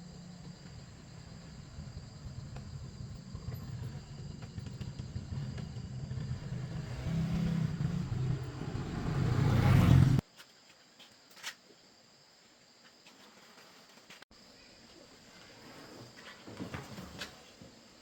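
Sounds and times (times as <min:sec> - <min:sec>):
motor rumbling hum: 0:00.0 - 0:10.2.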